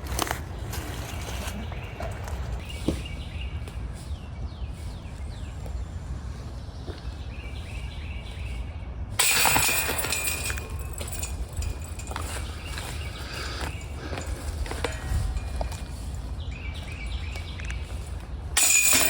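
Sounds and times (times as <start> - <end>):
birds chirping: 0.0 - 19.0
wind rumbling on microphone: 10.1 - 18.6.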